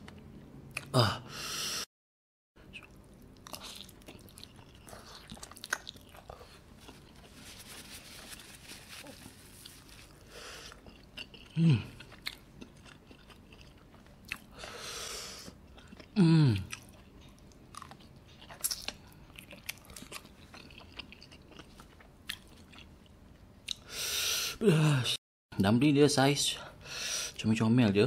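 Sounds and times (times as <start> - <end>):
man groaning: 0.9 - 1.3, 16.2 - 16.6, 24.6 - 25.2
man chewing with wet mouth clicks: 2.7 - 7.0, 10.7 - 14.6, 15.5 - 23.8.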